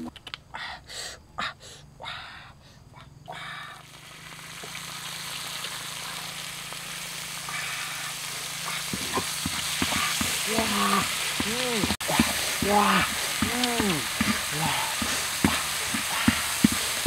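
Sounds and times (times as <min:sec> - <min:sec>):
crickets sizzling in a pan: 0:00.5 - 0:17.0
stick scraping and knocking pan: 0:08.9 - 0:17.0.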